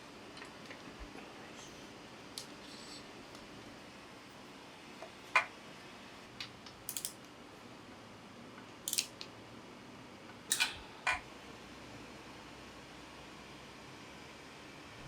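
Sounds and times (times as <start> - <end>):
metal tools clicking and clinking: 6.9 - 7.1, 10.5 - 11.2.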